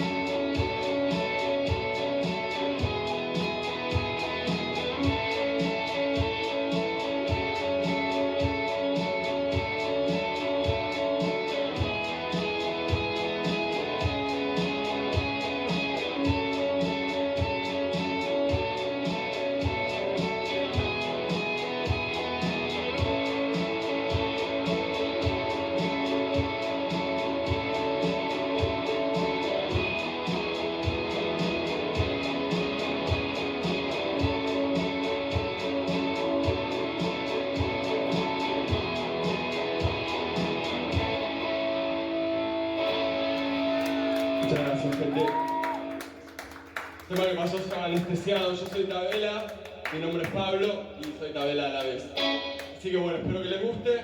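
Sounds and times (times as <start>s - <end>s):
steady drum beat: 0.0s - 41.3s
electric guitar indie rock: 0.0s - 48.8s, 51.8s - 53.4s.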